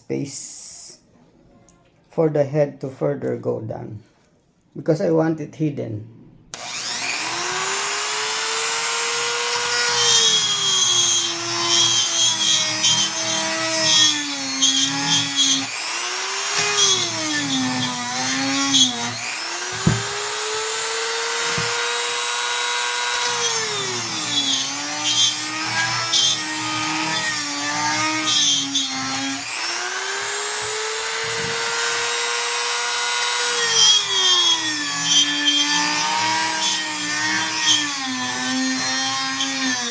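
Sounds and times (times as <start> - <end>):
electric drill boring into wood: 6.5 - 39.9
knock: 19.7 - 20.1.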